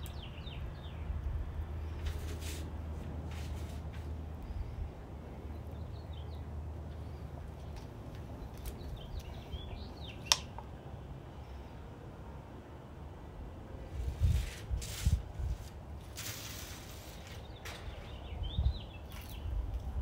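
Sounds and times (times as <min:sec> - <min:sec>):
small birds chirping: 0:00.0 - 0:02.4, 0:04.4 - 0:10.7, 0:16.8 - 0:20.0.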